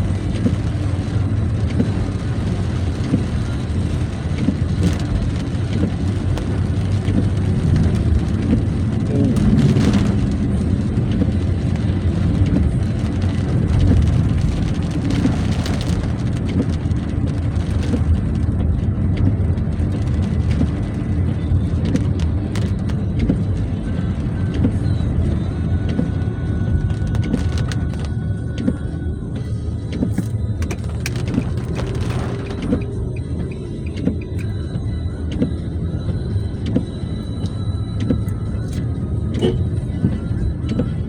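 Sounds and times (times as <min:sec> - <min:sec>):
car driving on wet road: 0:00.0 - 0:41.0.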